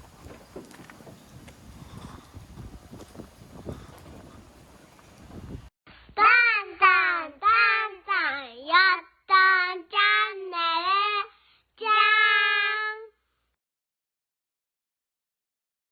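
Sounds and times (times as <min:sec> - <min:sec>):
high child-like voice singing: 0:06.2 - 0:13.2.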